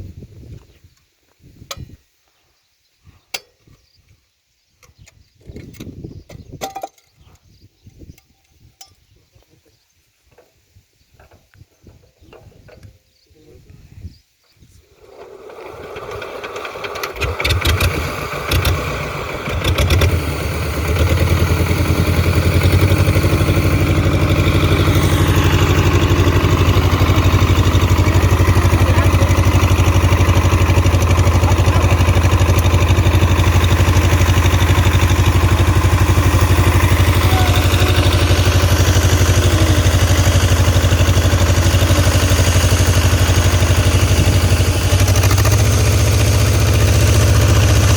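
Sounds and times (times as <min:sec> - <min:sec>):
diesel engine starting and running: 0:15.0 - 0:47.9.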